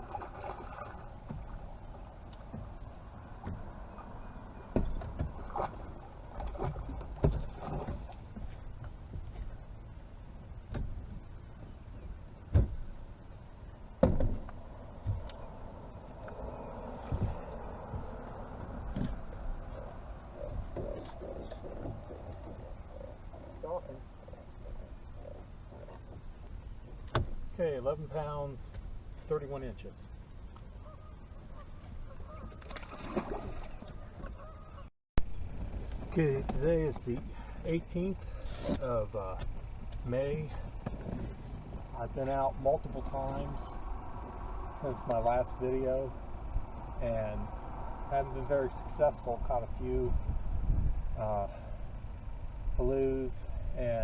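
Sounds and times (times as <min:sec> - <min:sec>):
knocks and thumps on a kayak: 0:00.0 - 0:09.6, 0:10.4 - 0:13.0, 0:14.0 - 0:15.5, 0:17.0 - 0:22.8, 0:25.9 - 0:27.6, 0:38.2 - 0:43.3
wind rumble on microphone: 0:00.0 - 0:27.6, 0:30.0 - 0:54.0
bird calls: 0:30.7 - 0:32.9, 0:33.8 - 0:34.9.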